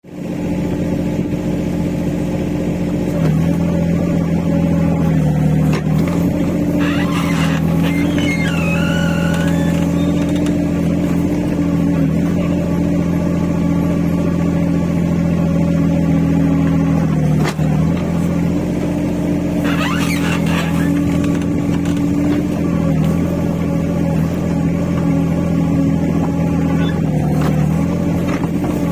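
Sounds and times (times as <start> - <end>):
excavator engine running: 0.1 - 28.9
squeaking boom joint: 5.7 - 11.8, 19.5 - 23.3, 26.2 - 28.9.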